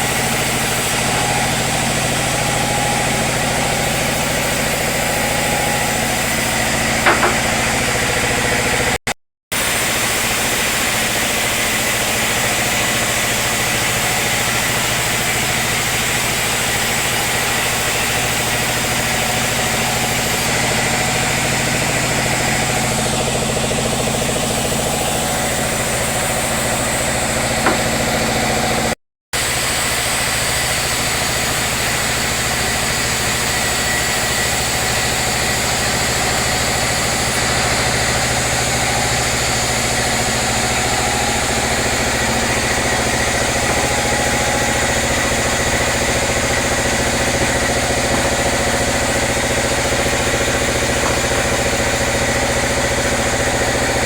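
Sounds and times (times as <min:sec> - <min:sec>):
sawmill machinery drone: 0:00.0 - 0:54.0
sharp knock: 0:07.0 - 0:07.6, 0:27.6 - 0:28.0.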